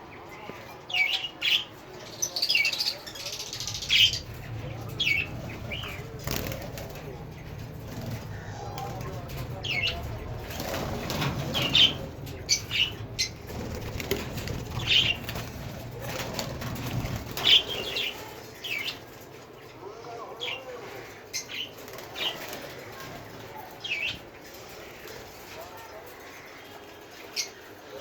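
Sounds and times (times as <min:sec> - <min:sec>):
low background noise: 0:00.0 - 0:28.0
parrots chirping: 0:02.3 - 0:07.6, 0:08.2 - 0:15.6.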